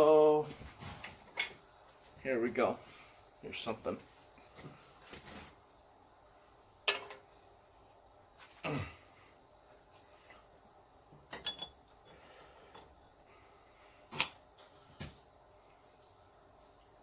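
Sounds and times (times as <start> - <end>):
metal tools clinking: 11.3 - 12.2.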